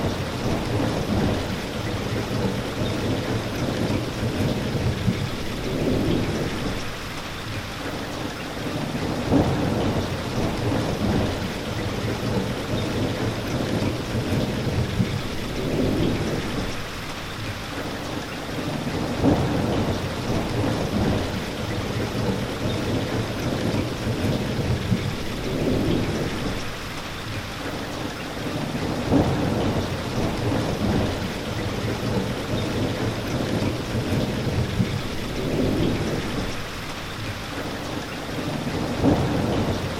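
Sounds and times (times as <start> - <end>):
rain falling: 0.0 - 39.9
rolling thunder: 9.0 - 16.9, 18.9 - 26.8, 28.8 - 36.8, 38.7 - 39.9.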